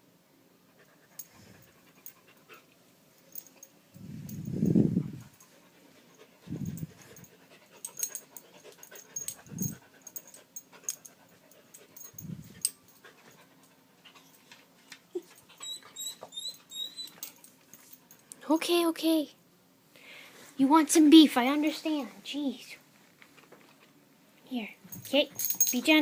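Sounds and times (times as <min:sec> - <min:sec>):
dog panting hard: 0:05.0 - 0:14.4
quick high squeaks: 0:15.6 - 0:17.2.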